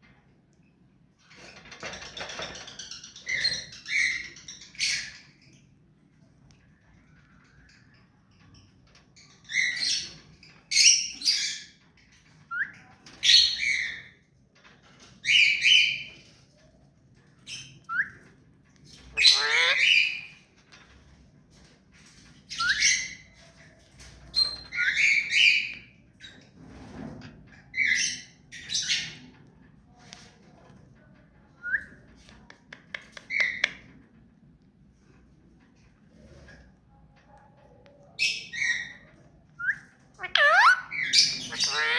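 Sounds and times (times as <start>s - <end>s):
parakeet calling: 19.2s - 20.3s, 39.6s - 41.9s.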